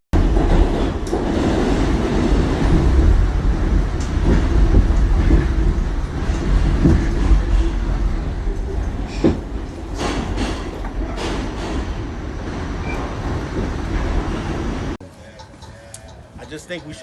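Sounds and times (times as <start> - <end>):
subway train rumbling: 0.1 - 17.0.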